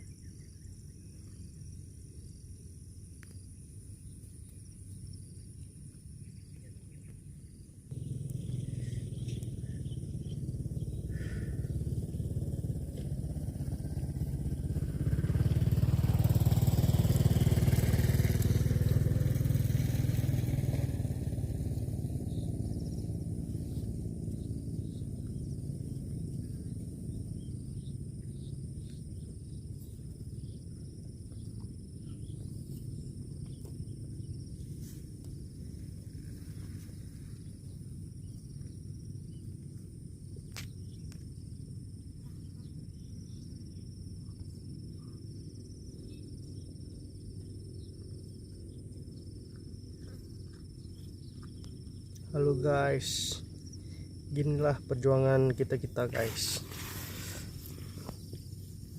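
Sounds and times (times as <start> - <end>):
motorcycle engine running: 7.9 - 58.9.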